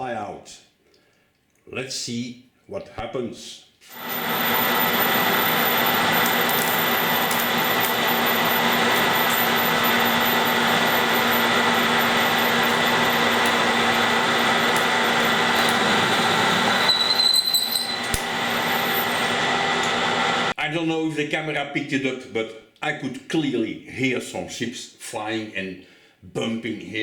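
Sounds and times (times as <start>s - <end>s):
high whistle: 3.9s - 19.5s
metal lathe cutting: 3.9s - 20.5s.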